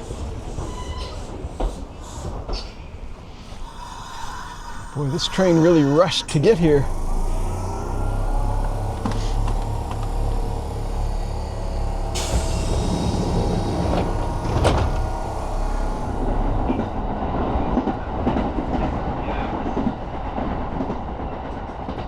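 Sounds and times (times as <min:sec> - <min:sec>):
electric train motor hum: 0:02.2 - 0:20.8
wheels clacking over rail joints: 0:06.2 - 0:22.0.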